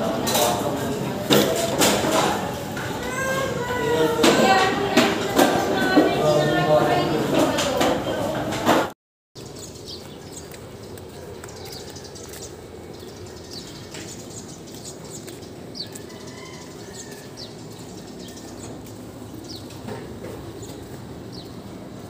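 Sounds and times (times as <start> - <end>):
steady background noise: 0.0 - 22.0
bird chirping: 9.4 - 19.8.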